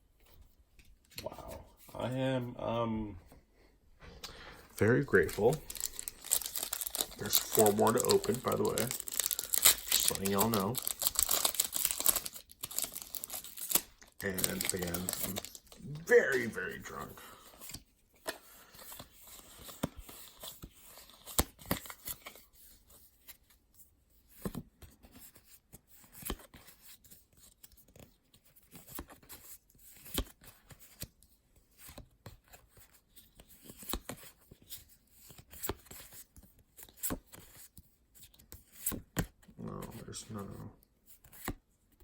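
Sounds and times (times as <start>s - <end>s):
cards being flipped: 4.2s - 22.5s, 24.3s - 31.1s, 31.7s - 40.0s, 41.1s - 41.6s
foil wrappers tearing and crinkling: 4.8s - 15.8s.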